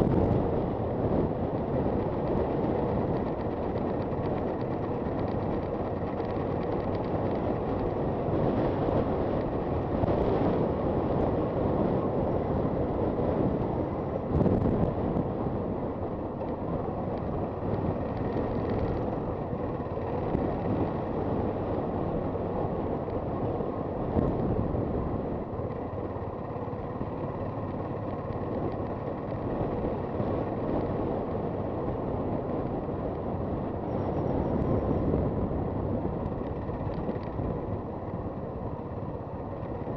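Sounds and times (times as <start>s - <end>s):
motorcycle engine running: 0.0s - 39.9s
road noise: 0.0s - 39.9s
wind buffeting microphone: 0.0s - 39.9s.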